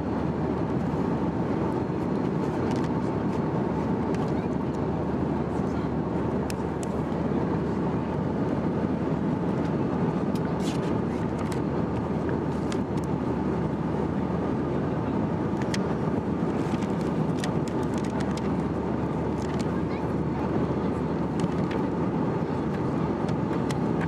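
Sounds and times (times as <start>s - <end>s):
airplane cabin engine noise: 0.0s - 24.0s
camera rattling in case: 16.6s - 18.5s.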